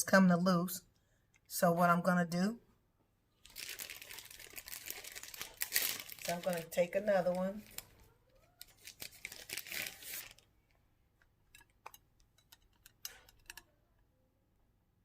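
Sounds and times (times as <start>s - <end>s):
packaging rustling: 3.4s - 10.5s.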